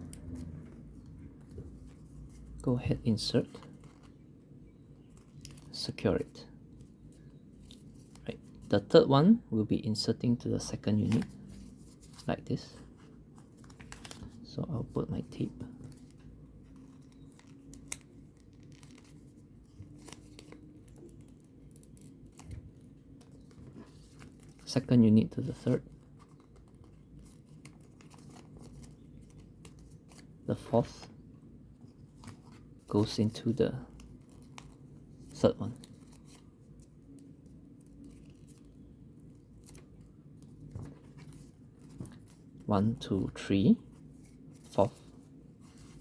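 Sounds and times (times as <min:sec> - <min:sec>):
low steady hum: 0:00.0 - 0:46.0
small clicks and crinkles: 0:03.4 - 0:04.2, 0:05.0 - 0:05.8, 0:13.0 - 0:14.4, 0:15.6 - 0:24.8, 0:25.8 - 0:30.3, 0:33.8 - 0:42.7.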